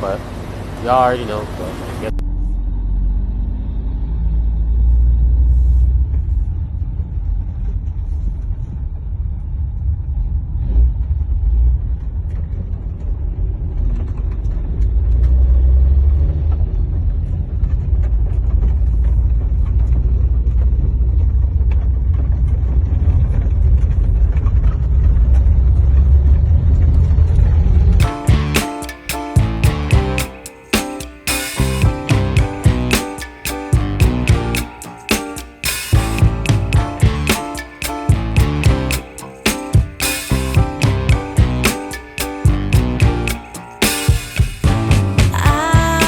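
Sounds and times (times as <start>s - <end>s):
music with a beat: 28.0s - 46.0s.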